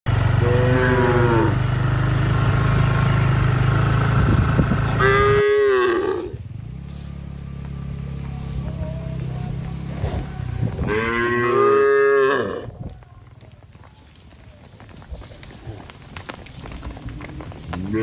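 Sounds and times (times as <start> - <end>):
cattle mooing: 0.3 - 1.6, 4.9 - 6.4, 9.9 - 12.8, 17.2 - 18.0.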